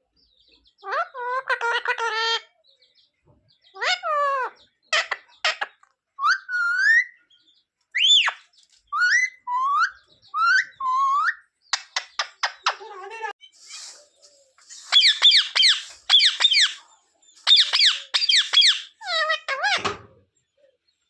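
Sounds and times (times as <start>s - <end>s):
parrot chirps: 14.6s - 16.8s, 17.4s - 19.9s
parrot whistling calls: 14.8s - 16.8s, 17.4s - 19.6s.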